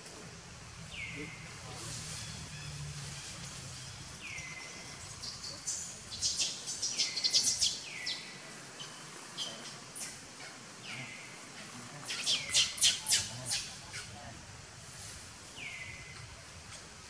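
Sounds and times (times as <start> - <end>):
birds whistling: 12.1 - 14.1.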